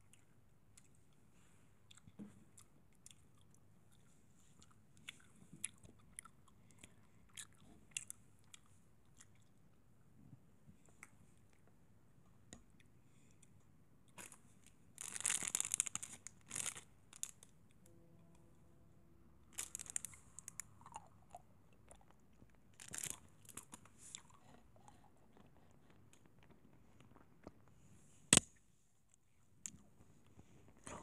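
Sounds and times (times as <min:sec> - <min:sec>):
close crunching and crackling: 0:15.0 - 0:17.5, 0:19.5 - 0:21.1, 0:22.7 - 0:24.4.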